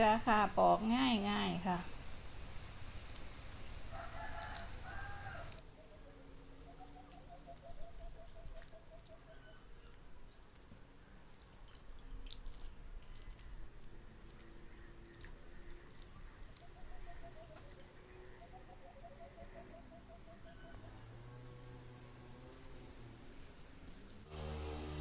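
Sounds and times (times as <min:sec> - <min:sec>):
eggshell crackling while peeling: 0:02.7 - 0:05.9, 0:06.5 - 0:17.8.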